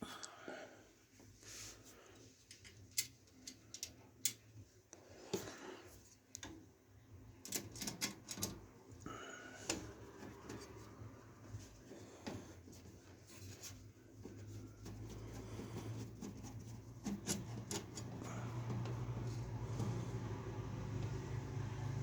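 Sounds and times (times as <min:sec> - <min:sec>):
small clicks and taps from handling parts: 0:02.1 - 0:06.7, 0:07.4 - 0:08.7
rustling: 0:09.7 - 0:20.0.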